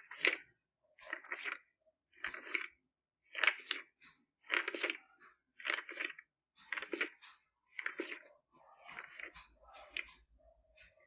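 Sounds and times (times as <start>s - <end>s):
book pages turning: 4.5s - 10.2s.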